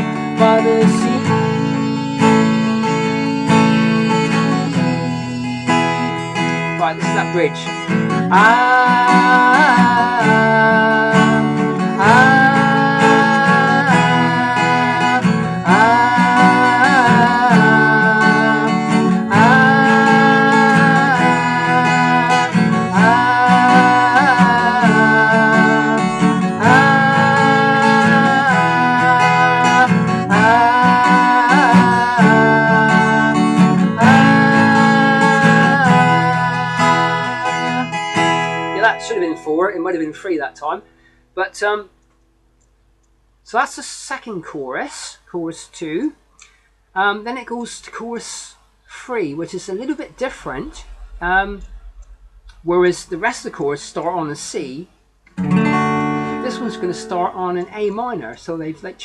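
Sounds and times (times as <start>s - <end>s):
man singing: 0.0s - 2.2s, 2.8s - 5.8s, 8.3s - 40.4s
acoustic guitar strummed: 0.0s - 41.1s, 55.3s - 57.6s.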